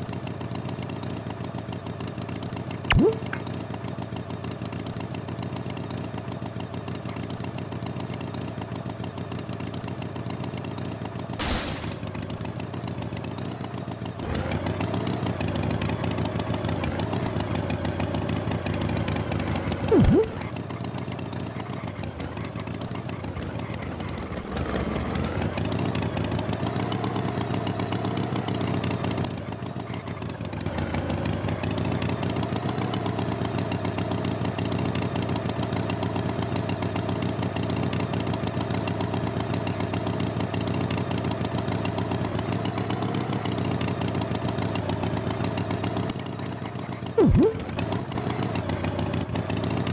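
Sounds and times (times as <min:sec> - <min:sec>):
loud pitch-dipping sound: 0:02.9 - 0:03.6, 0:19.9 - 0:20.5, 0:47.2 - 0:47.8.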